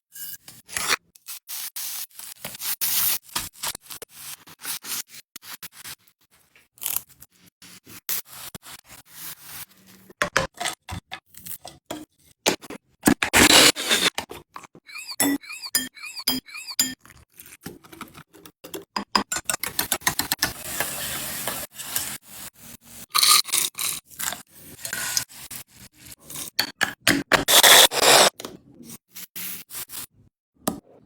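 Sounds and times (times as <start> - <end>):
utensils scraping and clicking: 12.5 - 22.2, 26.2 - 28.5.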